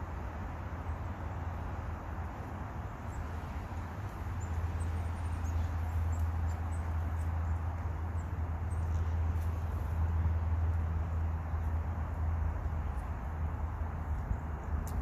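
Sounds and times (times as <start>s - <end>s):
steady low hum and hiss: 0.0s - 15.0s
small birds chirping: 2.4s - 10.1s.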